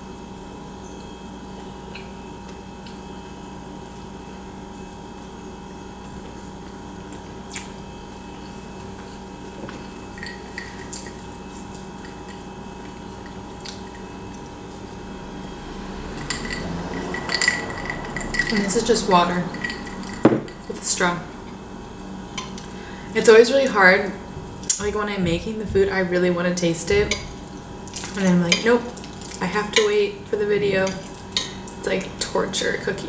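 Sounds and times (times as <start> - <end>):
steady low hum: 0.0 - 33.0
ice clinking in a glass: 10.1 - 11.2, 16.2 - 18.8.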